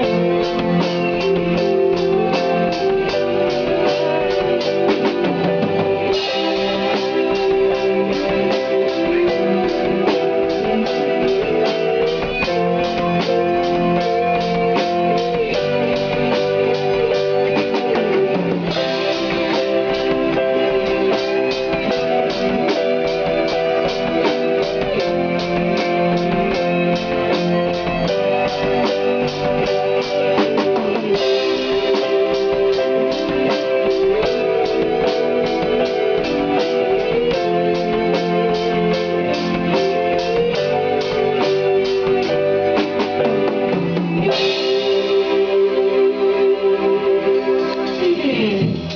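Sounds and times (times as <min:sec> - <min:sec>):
drum kit beat: 0:00.0 - 0:48.9
guitars: 0:00.0 - 0:48.9.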